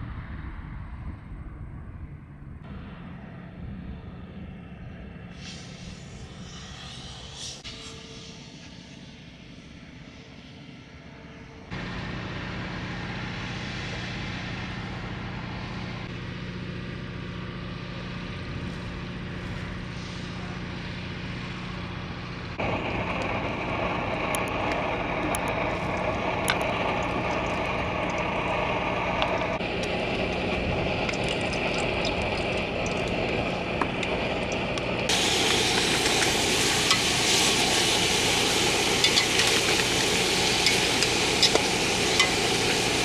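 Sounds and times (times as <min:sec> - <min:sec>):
vehicle engine hum: 0:11.7 - 0:43.0
road noise: 0:19.9 - 0:43.0.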